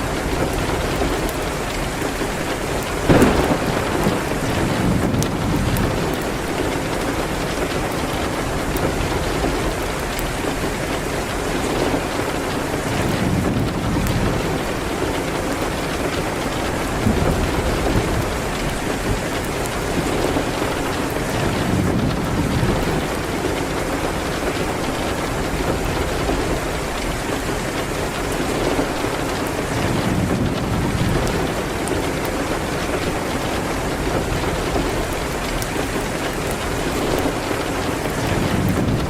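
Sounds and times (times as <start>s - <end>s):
steady rain: 0.0s - 39.0s
fireplace crackling: 0.1s - 10.7s.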